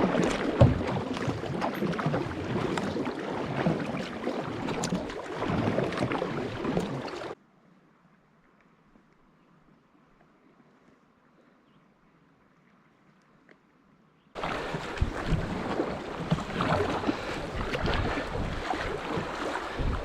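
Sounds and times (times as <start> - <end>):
low knocks and thumps: 0.0 - 1.6, 14.4 - 20.0
rushing river water: 0.0 - 7.4, 14.4 - 20.0
wind buffeting microphone: 14.4 - 20.0.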